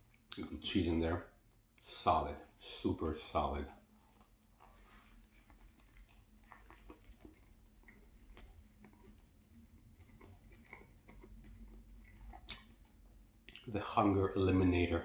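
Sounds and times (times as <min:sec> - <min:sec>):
close-up chewing: 0:03.2 - 0:13.8.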